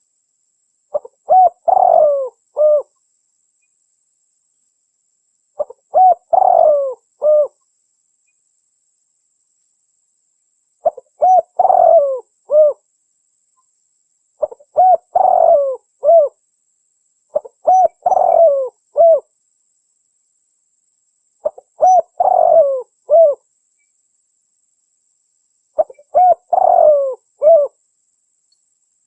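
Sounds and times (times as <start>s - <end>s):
dove cooing: 0.9s - 2.9s, 5.6s - 7.6s, 10.8s - 12.8s, 14.4s - 16.4s, 17.3s - 19.3s, 21.4s - 23.4s, 25.8s - 27.8s.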